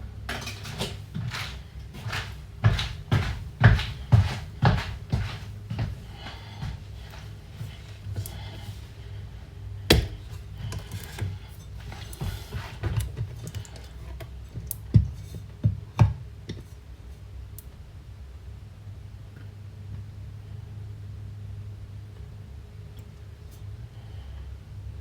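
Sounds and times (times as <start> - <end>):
kitchen knocks and clinks: 9.9 - 13.9.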